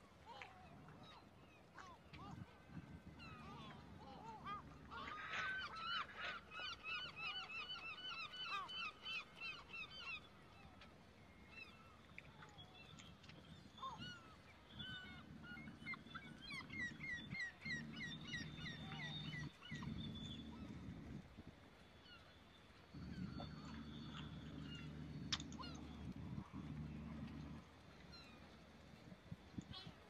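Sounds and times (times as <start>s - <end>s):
low hum: 13.1s - 21.8s, 22.8s - 29.7s.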